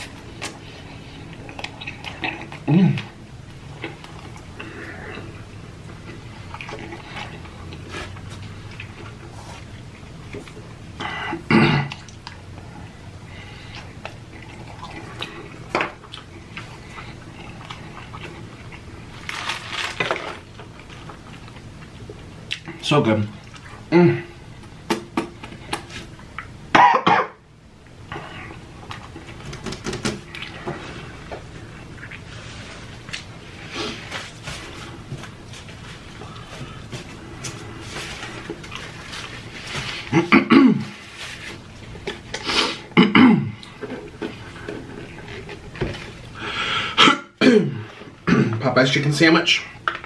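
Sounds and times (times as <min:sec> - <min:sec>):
chewing food: 0:00.0 - 0:11.0, 0:11.9 - 0:22.8, 0:28.1 - 0:40.2
person coughing: 0:11.0 - 0:12.0, 0:26.7 - 0:27.4, 0:40.0 - 0:40.9, 0:43.0 - 0:43.6, 0:47.0 - 0:48.6
person chewing and lip-smacking: 0:13.7 - 0:19.0, 0:20.8 - 0:22.8
hummed mouth sounds: 0:23.6 - 0:24.5.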